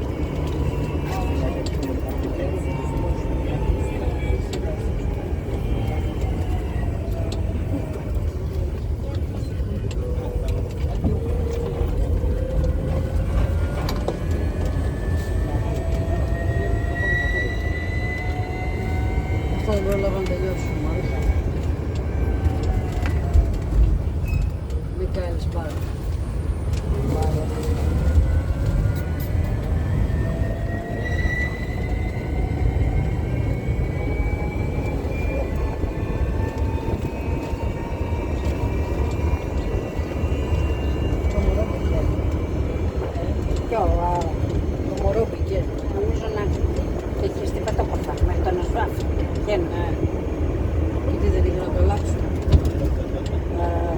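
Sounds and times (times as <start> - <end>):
engine whine rising in pitch: 0.0 - 24.5, 26.0 - 53.9
vehicle rumble: 0.0 - 53.9.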